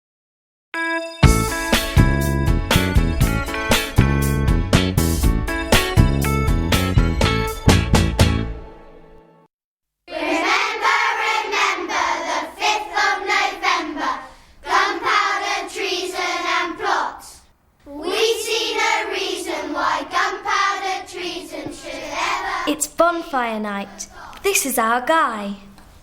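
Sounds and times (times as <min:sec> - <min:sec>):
children singing: 0:10.1 - 0:22.8.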